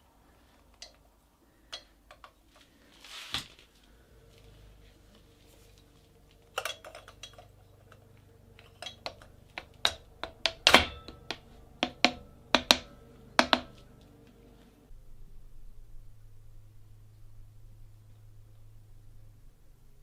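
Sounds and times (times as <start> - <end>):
metal parts and tools clinking: 5.7 - 13.1.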